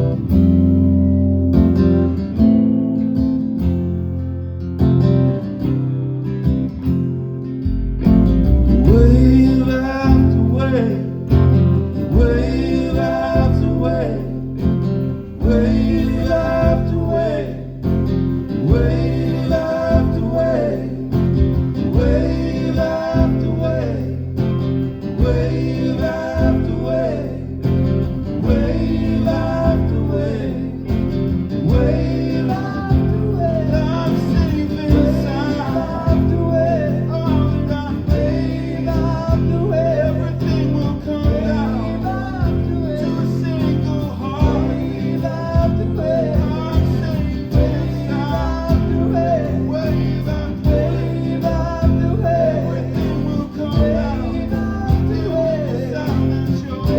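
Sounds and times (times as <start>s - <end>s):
live band playing: 7.6s - 10.5s
person singing: 18.6s - 24.4s, 28.4s - 56.9s.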